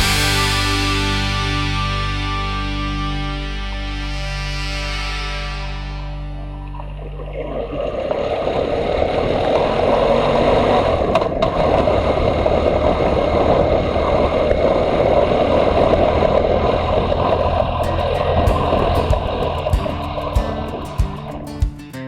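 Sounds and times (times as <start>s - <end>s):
motorcycle engine running: 0.0s - 1.6s, 17.9s - 21.8s
wind noise on microphone: 9.2s - 21.5s.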